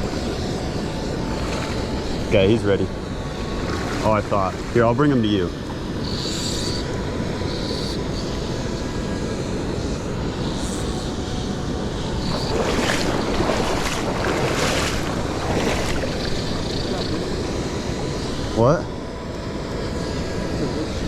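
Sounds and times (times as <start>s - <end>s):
stream water running: 0.0s - 9.2s, 10.0s - 21.0s
wind on microphone: 6.6s - 18.6s.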